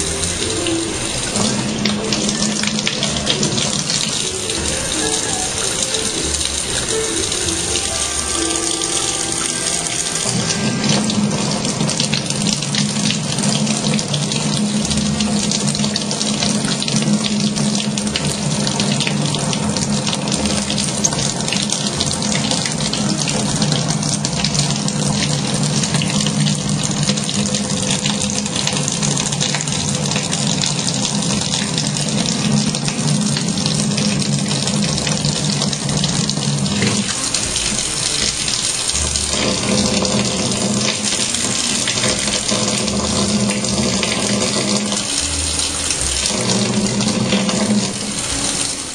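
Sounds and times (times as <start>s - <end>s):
tap running into sink: 10.0s - 48.8s.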